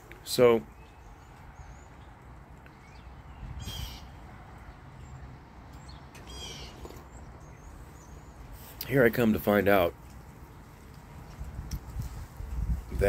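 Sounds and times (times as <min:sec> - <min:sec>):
faint harsh bird calls: 0:00.3 - 0:08.8.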